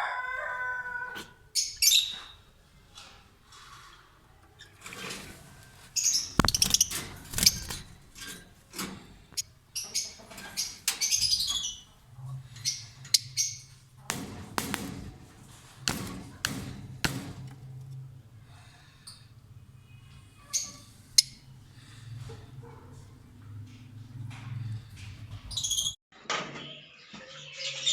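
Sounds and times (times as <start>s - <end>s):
lovebirds chirping and squawking: 0.0s - 2.4s, 5.5s - 17.3s, 18.6s - 22.7s, 24.5s - 26.0s
sharp clicks and knocks: 6.4s - 9.4s, 14.0s - 18.0s.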